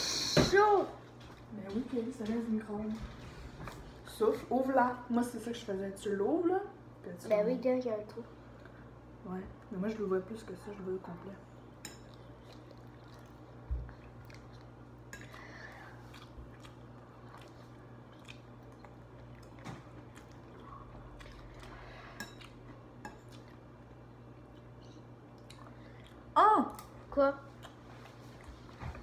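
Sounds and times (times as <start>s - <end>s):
steady low hum: 0.0s - 29.0s
people chewing food: 11.1s - 29.0s.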